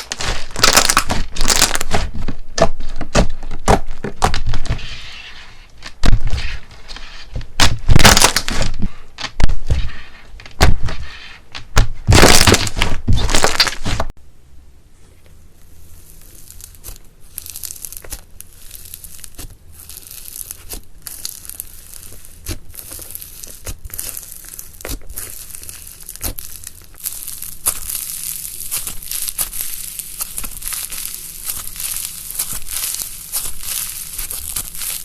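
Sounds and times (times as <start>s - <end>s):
slime squeezed crackling: 0.0s - 2.0s, 15.6s - 35.0s.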